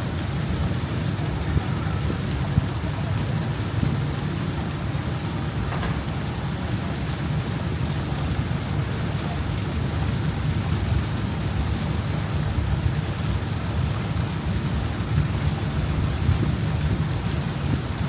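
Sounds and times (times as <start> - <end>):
boat running noise: 0.0 - 18.0
wind buffeting microphone: 9.8 - 18.0.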